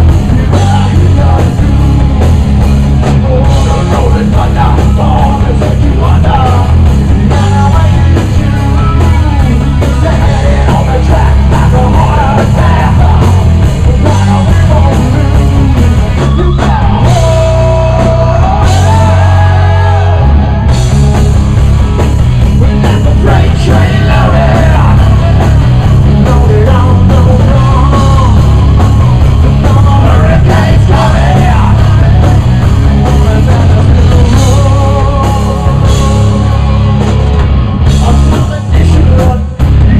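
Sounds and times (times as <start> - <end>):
live rock band playing: 0.0 - 39.9
melodic lead guitar line: 0.0 - 39.9.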